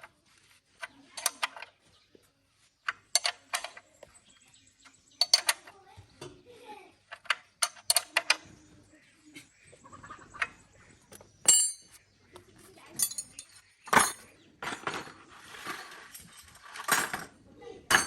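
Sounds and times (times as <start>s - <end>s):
metal tools clinking: 11.4s - 12.0s, 12.9s - 18.0s.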